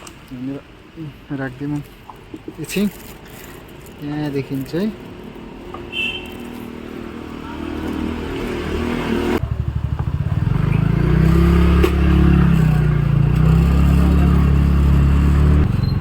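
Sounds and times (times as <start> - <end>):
vehicle engine running: 6.5 - 16.0.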